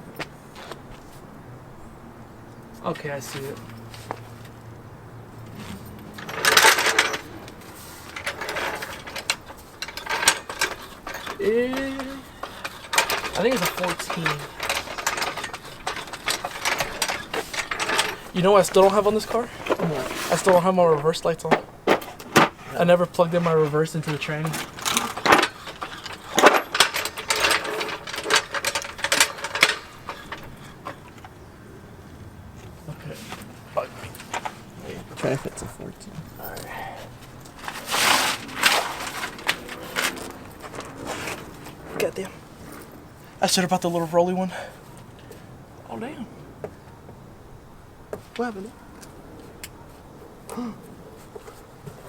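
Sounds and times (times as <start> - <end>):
metal hand tools clattering: 5.3 - 31.4, 33.2 - 44.7.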